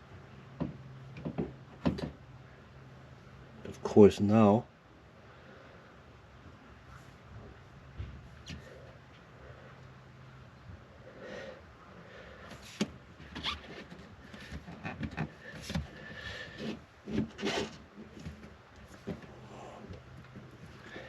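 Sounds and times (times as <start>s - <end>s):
sharp clicks and knocks: 0.6s - 2.2s
rubbing and scraping of parts: 12.5s - 21.0s.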